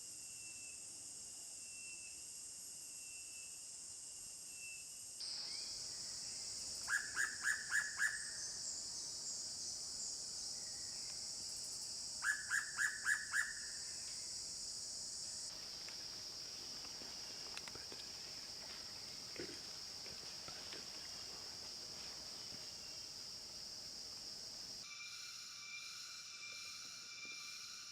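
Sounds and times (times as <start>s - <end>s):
high-pitched insect drone: 24.7s - 27.9s.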